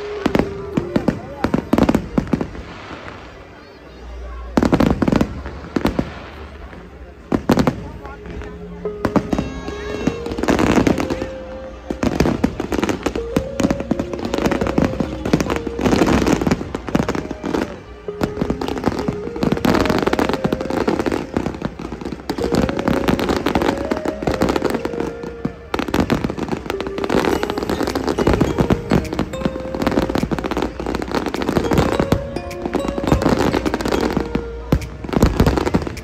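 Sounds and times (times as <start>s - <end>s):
music playing: 0.0s - 3.2s, 4.5s - 36.0s
fireworks bangs and crackles: 0.0s - 36.0s.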